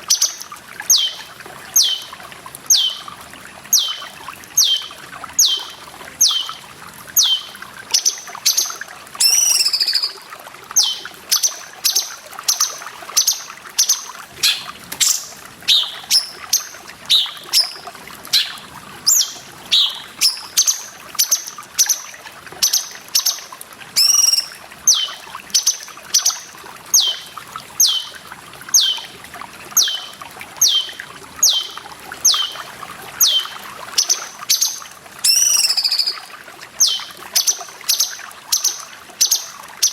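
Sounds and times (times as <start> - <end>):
running water trickling: 0.0 - 39.9
bird calling with falling high notes: 0.9 - 3.1, 3.7 - 6.6, 7.2 - 10.2, 10.8 - 12.0, 13.2 - 22.0, 24.0 - 26.4, 27.0 - 28.2, 28.8 - 29.1, 29.8 - 32.6, 33.2 - 34.6, 35.2 - 36.2.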